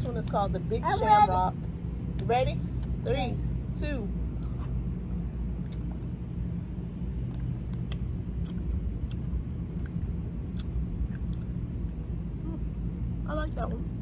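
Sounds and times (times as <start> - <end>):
steady low hum: 0.0 - 14.0
mouth clicks and smacks: 7.7 - 11.5.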